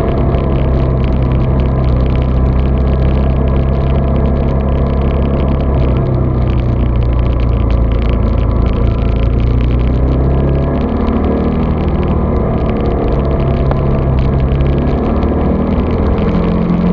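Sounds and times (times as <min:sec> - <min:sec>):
muffled vehicle engine hum: 0:00.0 - 0:16.9.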